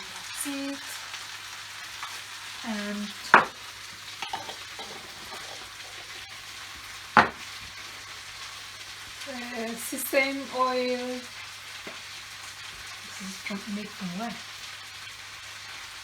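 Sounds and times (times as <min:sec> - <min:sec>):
noodles sizzling in a pan: 0:00.0 - 0:16.0
utensil knocking against pan: 0:03.4 - 0:03.6, 0:04.2 - 0:05.7, 0:07.2 - 0:07.5.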